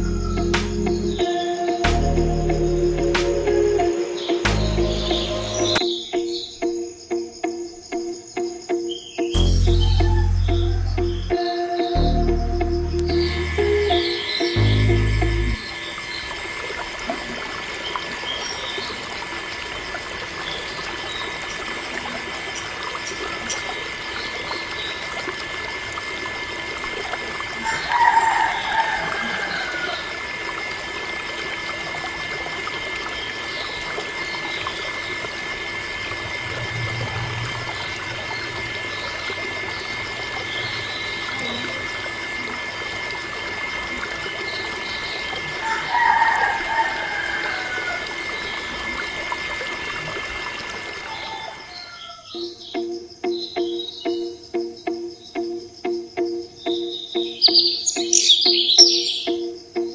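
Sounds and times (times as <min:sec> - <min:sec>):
electric water pump whine: 0:00.0 - 0:05.8, 0:12.0 - 0:51.7
water trickling: 0:09.4 - 0:53.3.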